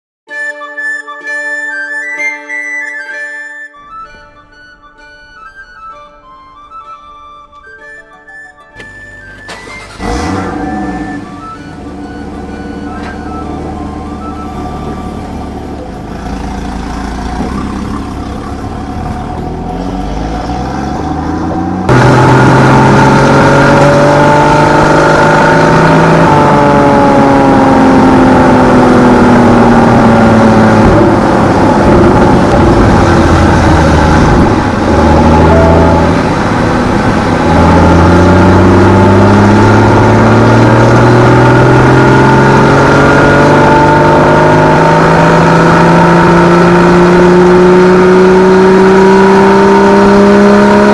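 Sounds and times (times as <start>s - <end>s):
car engine revving hard: 9.2s - 50.9s.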